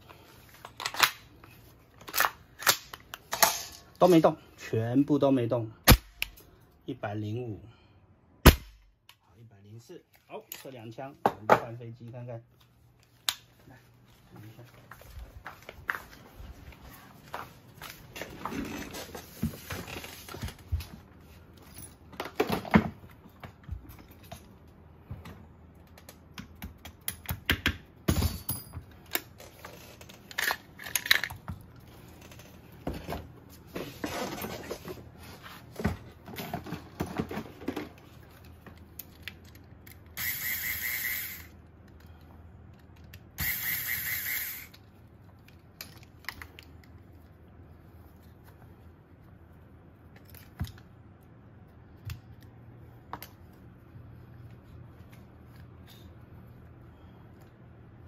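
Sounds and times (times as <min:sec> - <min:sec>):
metal parts clicking and scraping: 0:28.4 - 0:31.4, 0:38.4 - 0:47.0.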